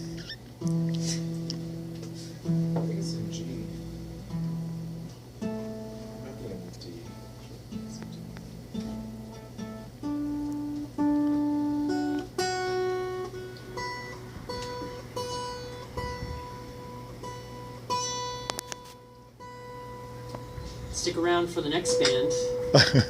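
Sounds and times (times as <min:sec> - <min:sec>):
acoustic guitar notes picked: 0:00.0 - 0:23.0.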